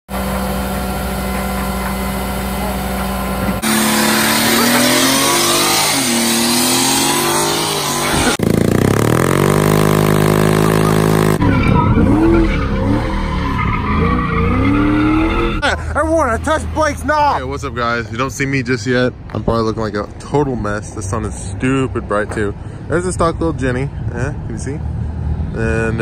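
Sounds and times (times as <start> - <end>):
car engine revving: 1.2 - 15.6.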